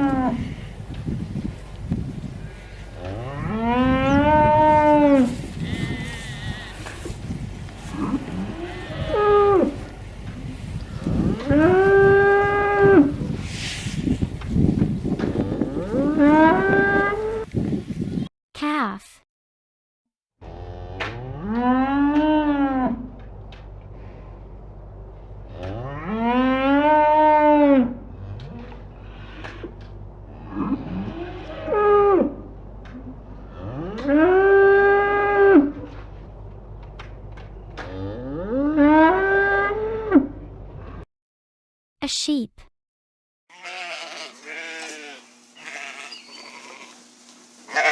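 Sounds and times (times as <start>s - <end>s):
cattle mooing: 3.0s - 7.2s, 7.8s - 9.9s, 11.0s - 13.2s, 33.4s - 35.8s, 43.5s - 47.0s
low background rumble: 21.9s - 41.0s.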